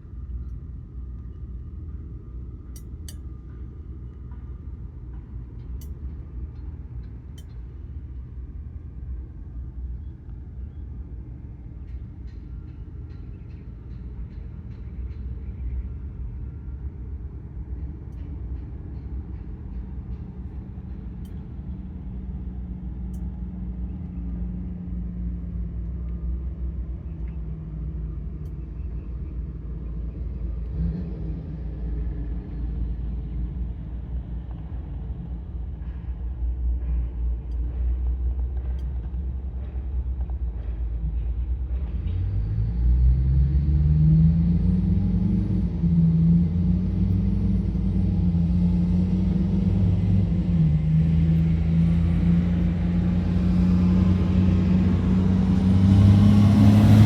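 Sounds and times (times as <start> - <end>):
engine rumbling: 0.0 - 57.0.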